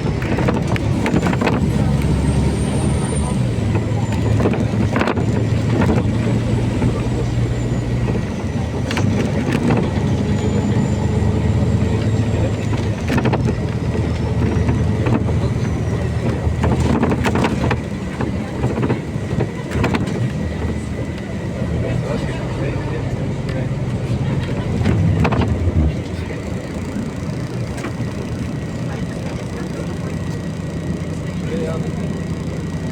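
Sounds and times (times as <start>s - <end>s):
bus diesel engine droning: 0.0s - 32.9s
body knocks and rattles: 12.0s - 20.4s.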